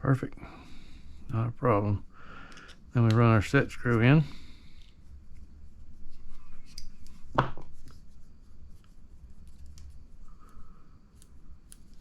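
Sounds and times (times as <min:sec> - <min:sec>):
small tool clicks and rubbing: 0:02.5 - 0:03.3, 0:08.8 - 0:12.0.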